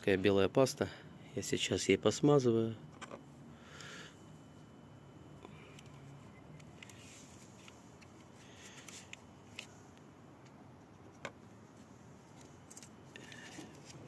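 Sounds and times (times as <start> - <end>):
soft rubs and scrapes: 6.9 - 9.7.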